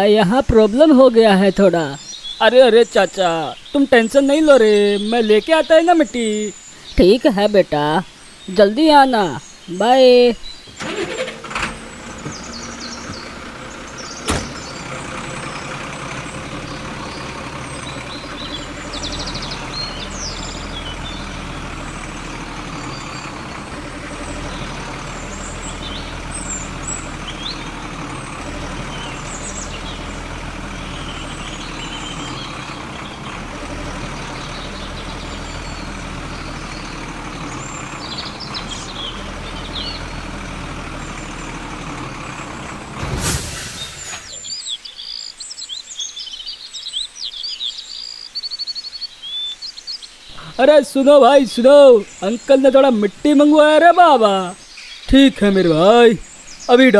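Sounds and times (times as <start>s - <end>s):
vehicle engine droning: 10.5s - 44.7s.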